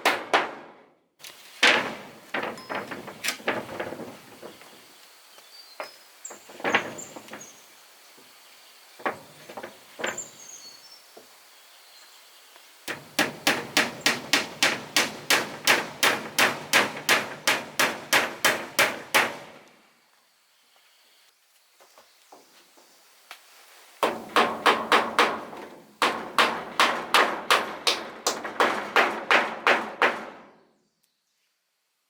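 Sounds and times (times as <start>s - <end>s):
hammer striking wood: 0.0s - 0.8s, 12.9s - 19.7s, 24.0s - 30.5s.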